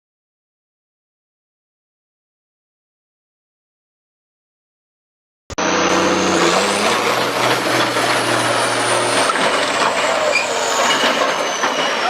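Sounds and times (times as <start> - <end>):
vehicle engine running: 5.5 - 11.8
road and traffic noise: 5.5 - 12.0.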